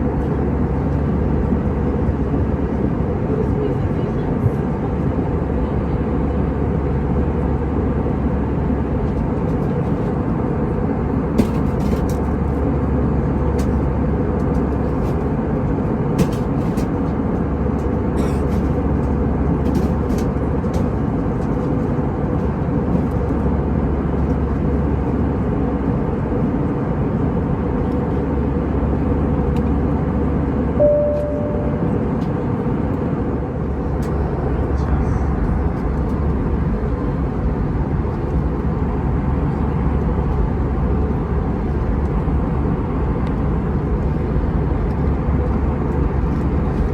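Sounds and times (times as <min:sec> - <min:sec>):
airplane cabin drone: 0:00.0 - 0:46.9
short single tone: 0:30.8 - 0:32.2.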